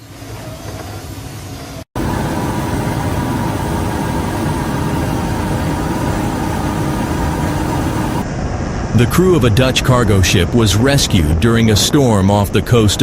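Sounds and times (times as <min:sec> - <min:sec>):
faint steady tones: 0:02.0 - 0:08.2
low mechanical rumble: 0:02.0 - 0:08.9.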